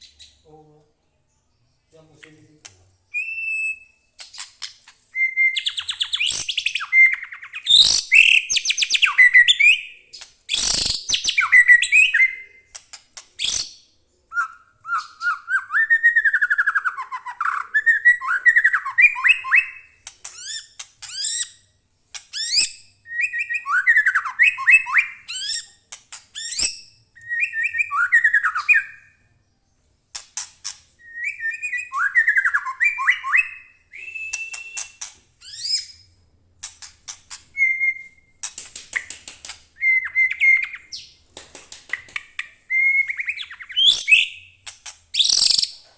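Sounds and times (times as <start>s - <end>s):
bird singing whistles and trills: 3.1s - 4.5s, 5.2s - 12.8s, 13.4s - 21.6s, 22.4s - 25.8s, 26.4s - 29.2s, 31.0s - 36.1s, 37.6s - 38.4s, 39.8s - 41.1s, 42.4s - 44.6s, 45.2s - 45.8s.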